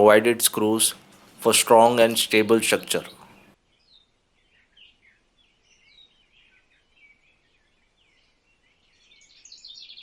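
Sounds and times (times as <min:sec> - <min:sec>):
small birds chirping: 0:00.0 - 0:03.5.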